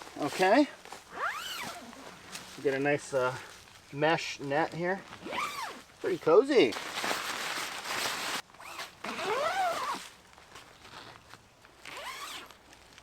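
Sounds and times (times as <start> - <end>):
tent zipper being pulled: 1.1 - 2.4, 5.1 - 5.9, 6.9 - 10.1, 11.8 - 12.6.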